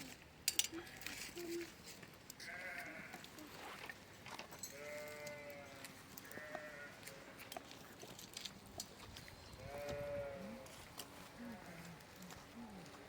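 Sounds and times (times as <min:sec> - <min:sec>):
sheep bleating: 0:02.5 - 0:03.2, 0:04.8 - 0:07.3.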